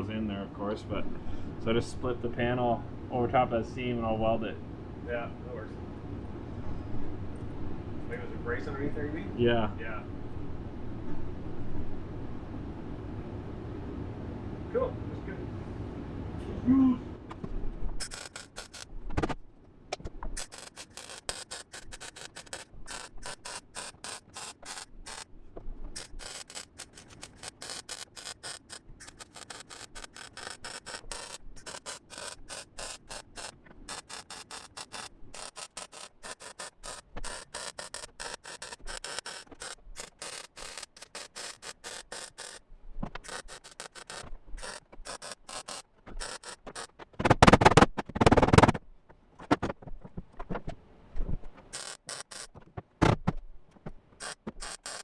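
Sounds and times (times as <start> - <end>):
welder crackling: 18.0 - 19.4, 20.3 - 48.8, 51.7 - 52.6, 54.2 - 55.0.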